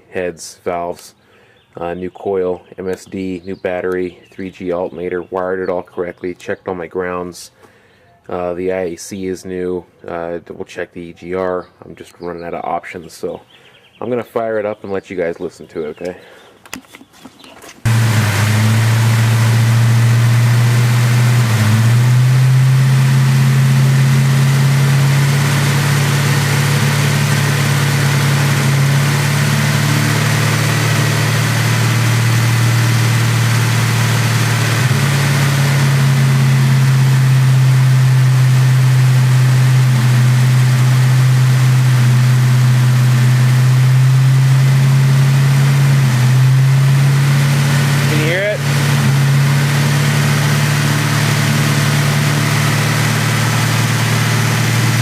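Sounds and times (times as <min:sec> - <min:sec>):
car engine idling with misfire: 0:17.9 - 0:55.0.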